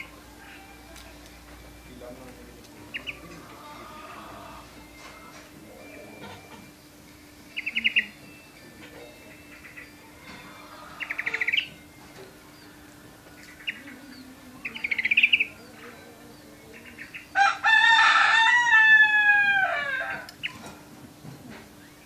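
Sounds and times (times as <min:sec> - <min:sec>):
rooster crowing: 0:00.0 - 0:01.0, 0:03.1 - 0:04.9, 0:10.2 - 0:11.6, 0:17.3 - 0:20.5
canary trilling: 0:00.0 - 0:01.1, 0:02.8 - 0:20.7.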